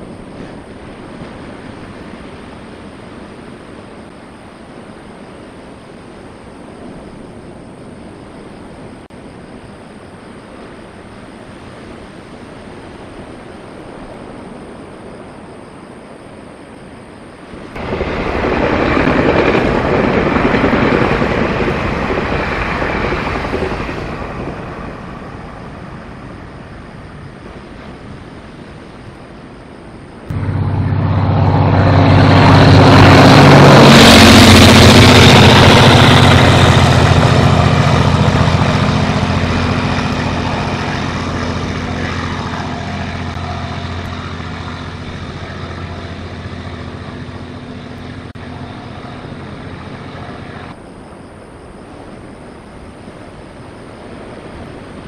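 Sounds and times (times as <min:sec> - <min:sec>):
wheels rushing on rail: 0:00.0 - 0:16.0, 0:17.4 - 0:55.0
diesel locomotive engine drone: 0:00.0 - 0:55.0.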